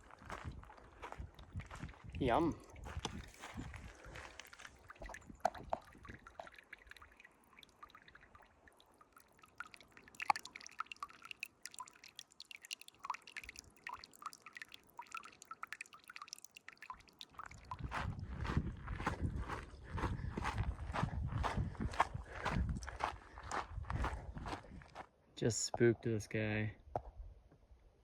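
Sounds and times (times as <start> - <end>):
water dripping and trickling: 0.0 - 18.6.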